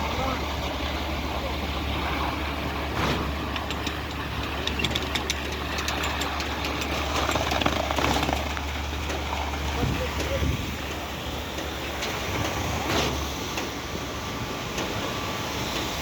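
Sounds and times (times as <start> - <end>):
diesel engine droning: 0.0 - 16.0
clicks and knocks: 3.5 - 8.6.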